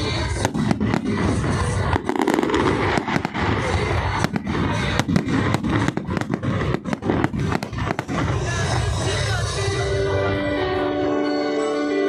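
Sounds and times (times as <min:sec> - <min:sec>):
firework bangs and pops: 0:00.0 - 0:09.0
music playing: 0:00.0 - 0:12.0.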